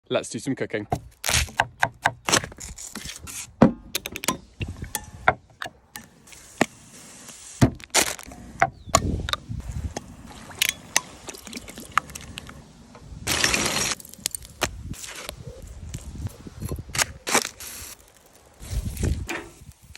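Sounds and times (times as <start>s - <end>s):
rustling hiss: 6.0s - 19.9s.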